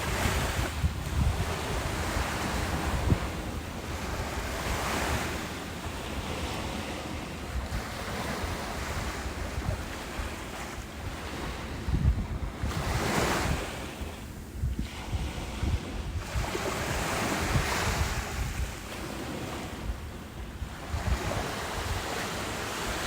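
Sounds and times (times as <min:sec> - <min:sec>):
ocean waves breaking: 0:00.0 - 0:23.0
wind buffeting microphone: 0:00.0 - 0:23.0.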